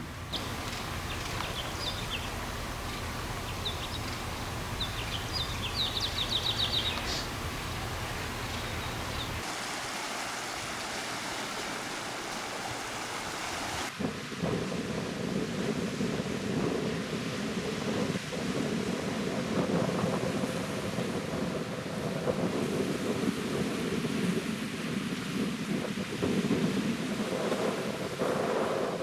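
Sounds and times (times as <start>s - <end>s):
steady rushing noise: 0.0s - 18.9s
small birds chirping: 0.1s - 9.5s
bird trill: 0.4s - 9.4s.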